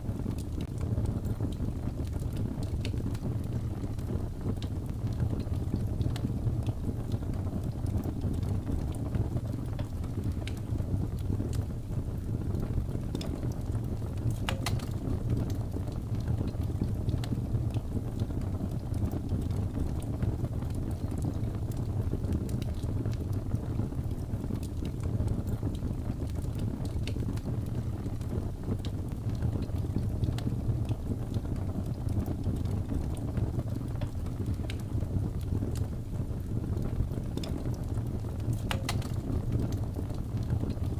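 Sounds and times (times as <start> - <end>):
fire crackling and popping: 0.0 - 40.9
low rumble of flames: 0.0 - 40.9.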